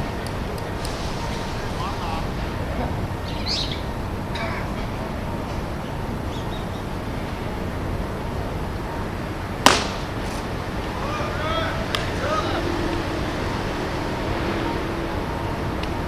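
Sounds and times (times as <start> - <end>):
baseball impact crack: 9.6 - 10.5.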